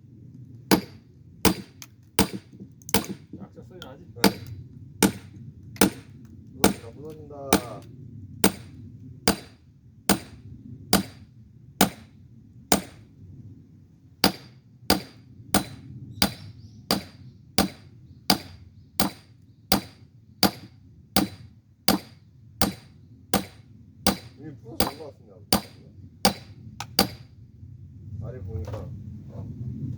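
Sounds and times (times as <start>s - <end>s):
sledgehammer striking steel wedge: 0.7s - 3.2s, 4.2s - 6.9s, 8.4s - 8.7s, 9.3s - 11.2s, 11.8s - 12.1s, 14.2s - 27.3s.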